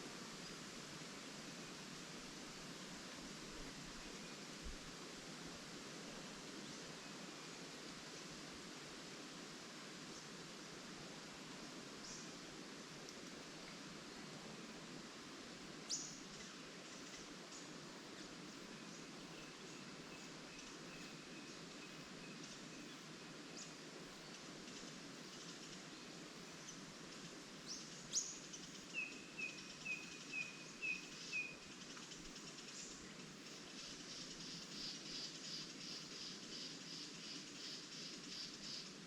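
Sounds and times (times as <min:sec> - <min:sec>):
songbirds calling: 0:27.7 - 0:39.0.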